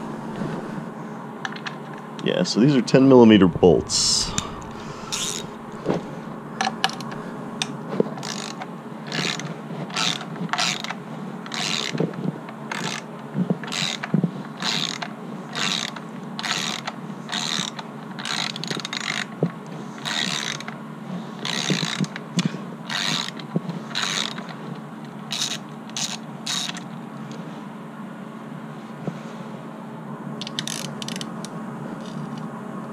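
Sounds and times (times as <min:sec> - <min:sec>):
socket ratchet clicking: 0:08.2 - 0:12.0, 0:13.7 - 0:19.3, 0:21.4 - 0:22.2, 0:22.9 - 0:23.4, 0:24.0 - 0:24.4, 0:25.3 - 0:26.8, 0:30.4 - 0:31.3.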